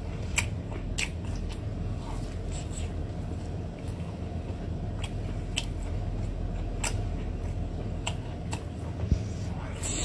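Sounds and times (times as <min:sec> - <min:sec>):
low hum: 0:00.0 - 0:10.0
sucking and chewing: 0:00.0 - 0:10.0.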